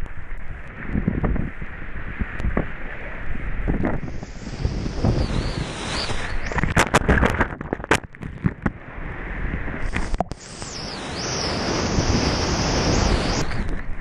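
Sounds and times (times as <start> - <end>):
water splashing and rushing: 0.0 - 14.0
wind buffeting microphone: 0.0 - 14.0
sharp crackles: 3.8 - 8.7, 9.8 - 14.0.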